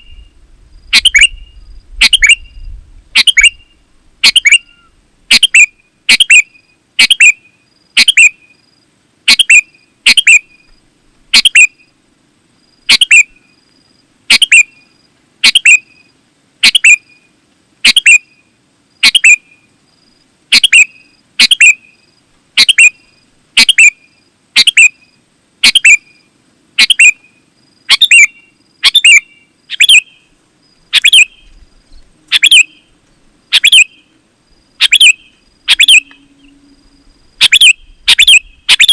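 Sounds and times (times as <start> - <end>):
bulbul chirping: 30.9 - 31.5, 32.3 - 32.8, 33.5 - 34.0, 34.8 - 36.2, 37.4 - 38.9.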